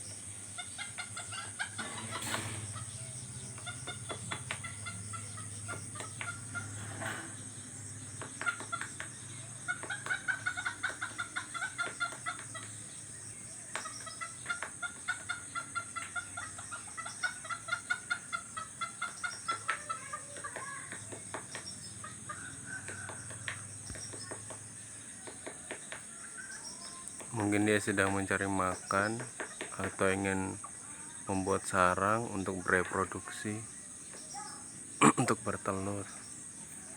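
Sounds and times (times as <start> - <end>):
high insect hiss: 0.0 - 36.9.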